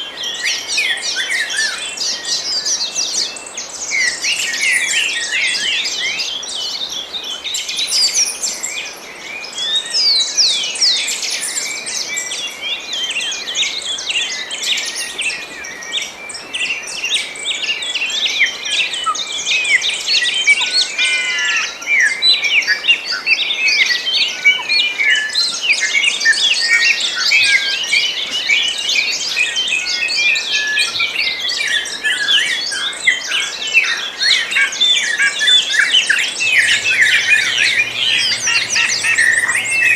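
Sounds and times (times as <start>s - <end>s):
small birds chirping and singing: 36.1s - 39.9s.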